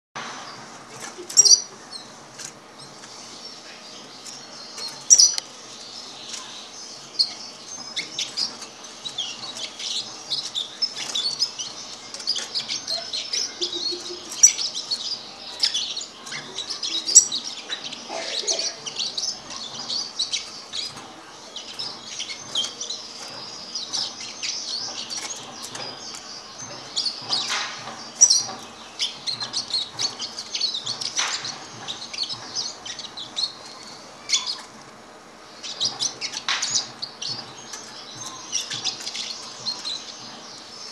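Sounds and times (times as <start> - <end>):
sharp bird calls: 0.2 - 40.9
young bird twittering: 1.2 - 2.1.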